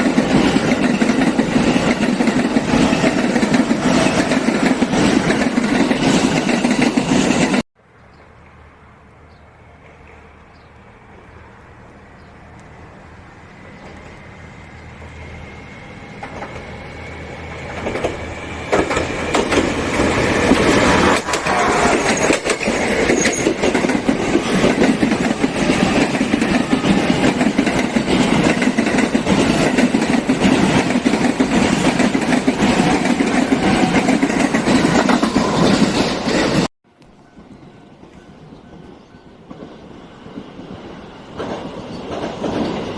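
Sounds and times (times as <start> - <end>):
train passing: 0.0 - 42.9
wheels clattering over track: 17.7 - 36.6
high ringing from rails: 21.1 - 24.1.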